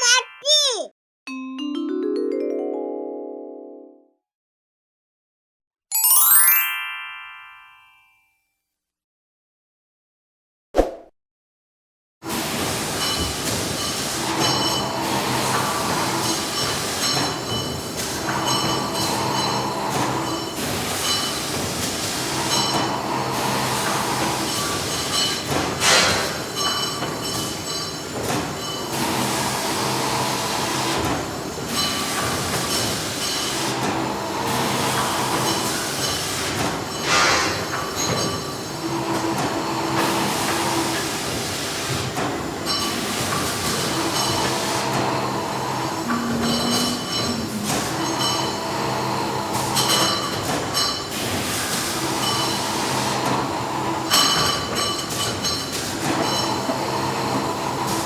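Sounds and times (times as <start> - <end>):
high machine whine: 44.9 - 49.5.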